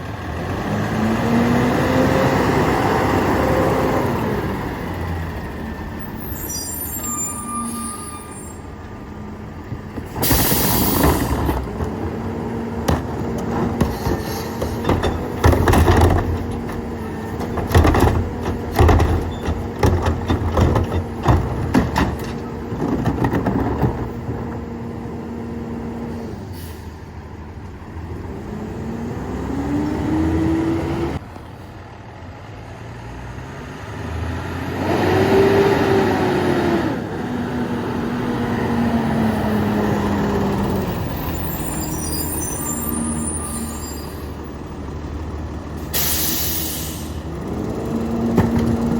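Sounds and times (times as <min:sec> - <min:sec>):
truck engine revving: 0:00.0 - 0:06.3, 0:27.8 - 0:31.2, 0:33.0 - 0:48.9
knocks and bangs: 0:12.8 - 0:24.1.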